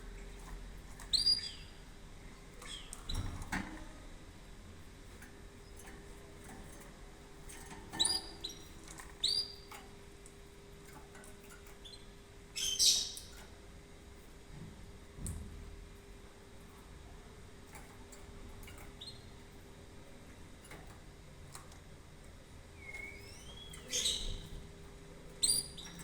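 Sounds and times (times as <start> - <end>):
canary chirping: 0.9 - 1.8, 2.6 - 3.6, 7.4 - 9.8, 11.6 - 13.5, 18.6 - 19.5, 22.7 - 24.6, 25.3 - 26.0.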